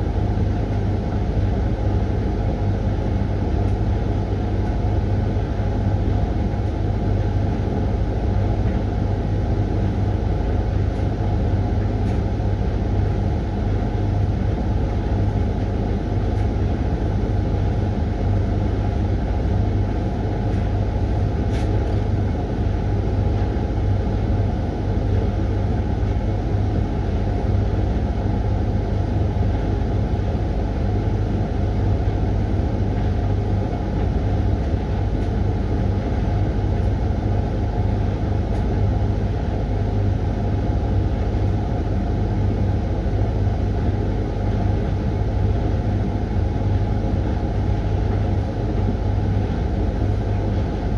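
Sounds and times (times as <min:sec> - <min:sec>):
washing machine running: 0:00.0 - 0:50.9.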